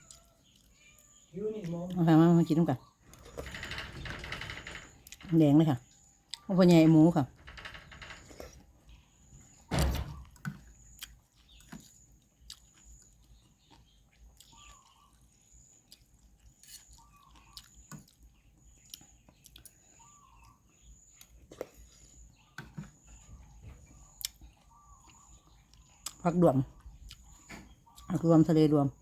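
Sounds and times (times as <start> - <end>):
person chewing noodles: 10.9 - 19.8.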